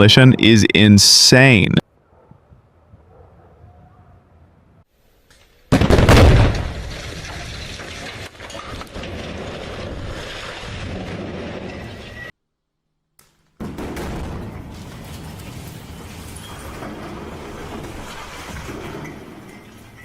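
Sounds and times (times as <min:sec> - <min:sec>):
explosive demolition blast: 0:05.7 - 0:08.2, 0:13.6 - 0:19.4
chimney collapsing: 0:05.8 - 0:12.3, 0:13.6 - 0:20.0.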